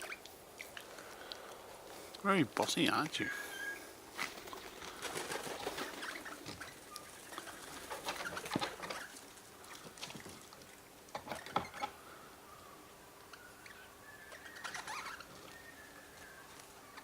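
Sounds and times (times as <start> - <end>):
birds pecking and scratching: 0.0 - 12.2, 13.2 - 17.0
bird calls: 3.0 - 10.0, 11.3 - 17.0.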